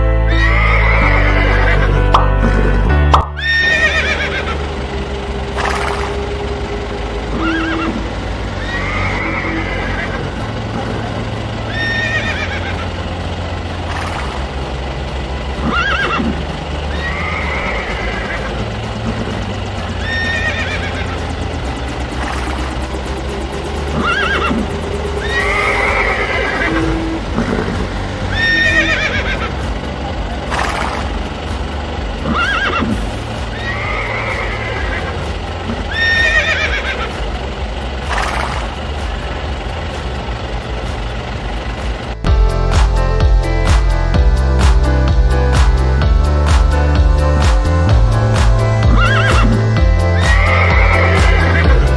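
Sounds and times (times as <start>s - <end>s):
electronic music: 0.0s - 13.1s, 13.9s - 51.9s
horse neighing: 0.3s - 2.8s, 3.4s - 4.6s, 7.3s - 10.3s, 11.7s - 12.9s, 15.6s - 16.3s, 16.9s - 18.6s, 20.0s - 21.2s, 23.9s - 29.5s, 32.2s - 35.2s, 35.8s - 37.1s, 48.9s - 49.6s, 50.2s - 51.8s
low steady hum: 1.4s - 51.9s.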